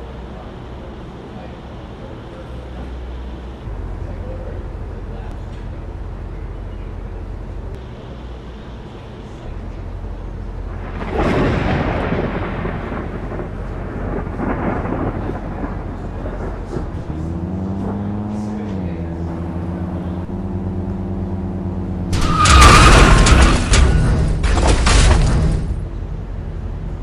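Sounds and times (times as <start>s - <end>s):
steady motor drone: 0.0s - 27.0s
vehicle rushing and rumbling: 0.0s - 27.0s
sudden loud burst: 22.1s - 25.8s.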